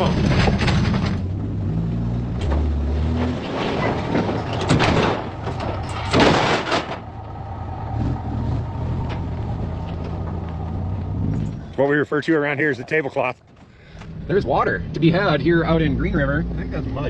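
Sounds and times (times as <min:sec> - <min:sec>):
road noise: 0:00.0 - 0:17.0
vehicle engine running: 0:04.0 - 0:17.0.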